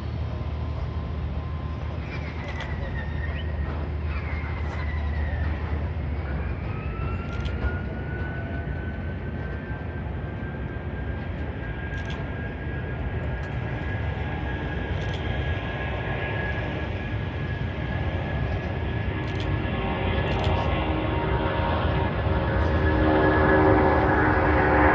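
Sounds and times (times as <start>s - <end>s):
deep engine rumble: 0.0s - 24.9s
jet engines whining: 0.0s - 24.9s
faint clicks: 2.4s - 2.8s, 7.3s - 7.7s, 11.9s - 12.4s, 15.0s - 15.4s, 19.2s - 19.6s, 20.3s - 20.7s.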